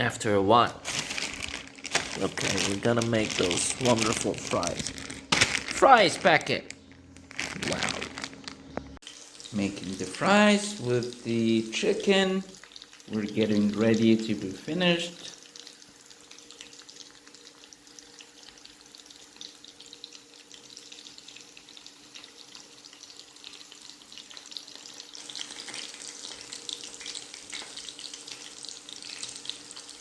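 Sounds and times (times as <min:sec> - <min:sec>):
food sizzling in hot oil: 0:09.0 - 0:30.0.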